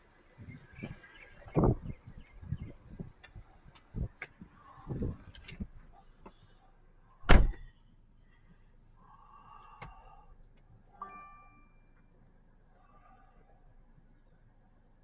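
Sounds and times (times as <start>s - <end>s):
car door shutting: 7.3s - 7.6s
car electronic chime: 11.0s - 12.1s.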